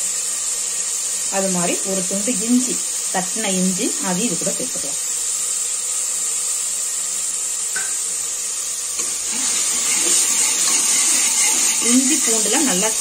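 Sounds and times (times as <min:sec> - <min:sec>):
vegetables sizzling in oil: 0:00.0 - 0:13.0
ladle stirring in pot: 0:09.0 - 0:13.0.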